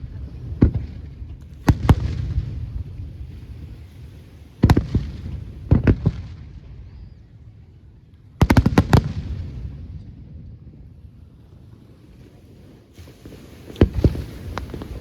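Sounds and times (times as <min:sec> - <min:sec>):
fireworks bangs: 0:00.0 - 0:07.2, 0:08.4 - 0:10.2, 0:12.9 - 0:15.0
low rolling rumble: 0:00.0 - 0:12.0.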